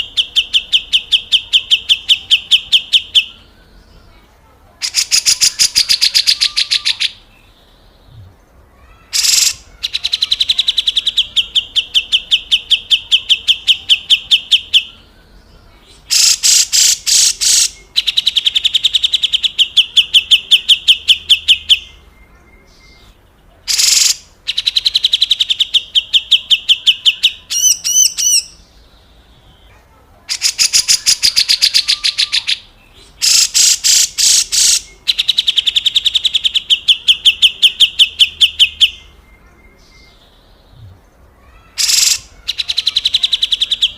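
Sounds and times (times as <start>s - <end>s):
bulbul rasping rattle calls: 4.8s - 7.2s, 9.1s - 14.9s, 16.0s - 21.8s, 23.7s - 28.6s, 30.3s - 39.0s, 41.6s - 43.9s.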